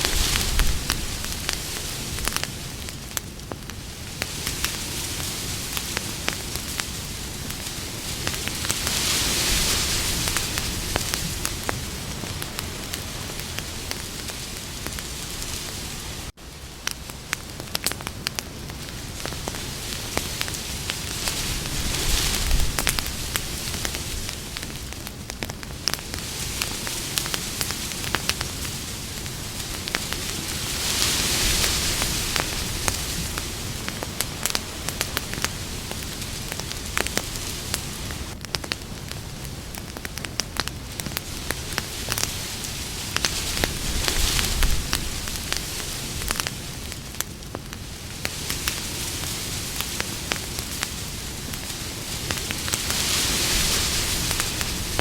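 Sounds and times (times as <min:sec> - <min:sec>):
campfire crackling and popping: 0:00.0 - 0:55.0
fire hiss: 0:00.0 - 0:55.0.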